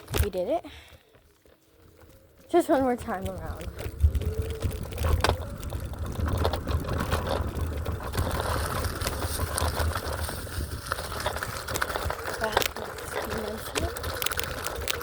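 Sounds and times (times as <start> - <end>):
scooter rattling over rocky ground: 0.0 - 0.6, 1.2 - 15.0.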